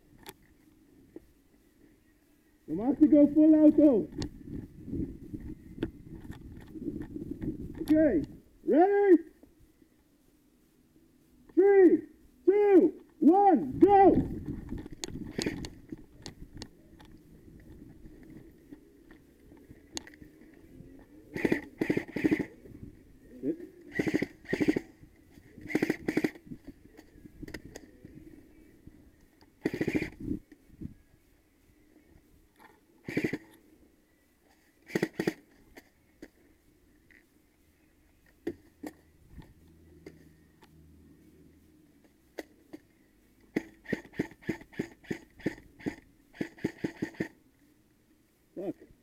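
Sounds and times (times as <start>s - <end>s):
airsoft gun firing bursts: 21.3s - 22.6s, 23.9s - 24.9s, 25.7s - 26.4s, 29.6s - 30.2s, 33.0s - 33.5s, 34.9s - 35.4s, 43.5s - 47.4s
airsoft gun shots: 23.9s - 24.9s, 25.7s - 26.4s, 34.9s - 35.4s.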